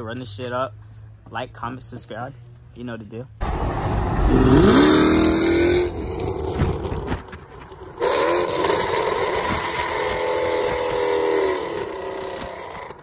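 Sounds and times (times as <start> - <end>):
car engine accelerating: 3.4 - 13.0
wind and tyre rush: 3.4 - 13.0.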